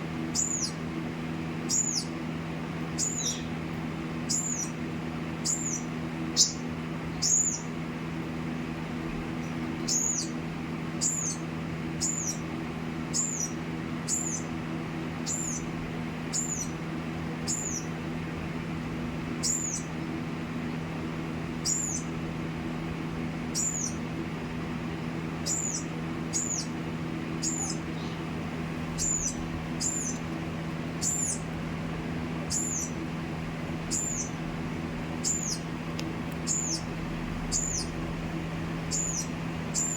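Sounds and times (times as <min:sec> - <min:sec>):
steady low hum: 0:00.0 - 0:39.9
small bird chirping: 0:00.2 - 0:00.9, 0:01.6 - 0:02.2, 0:02.9 - 0:07.8, 0:09.4 - 0:18.0, 0:19.3 - 0:20.1, 0:21.6 - 0:22.2, 0:23.4 - 0:24.1, 0:25.3 - 0:31.6, 0:32.4 - 0:33.1, 0:33.7 - 0:35.8, 0:36.4 - 0:38.0, 0:38.6 - 0:39.9.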